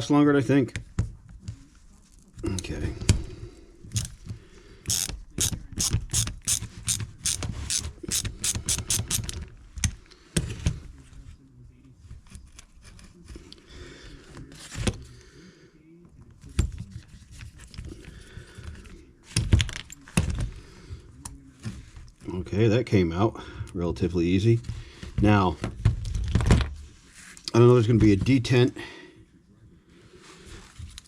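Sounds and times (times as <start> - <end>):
tool handling noise: 3.9 - 10.0
screwdriver ratcheting clicks: 4.0 - 4.2, 4.9 - 9.4.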